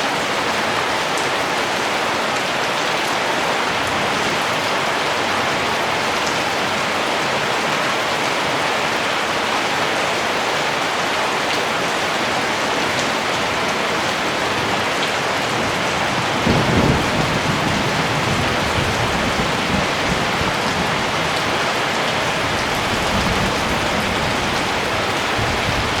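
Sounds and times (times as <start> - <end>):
rain falling: 0.0 - 26.0
thunder rumbling: 15.5 - 26.0.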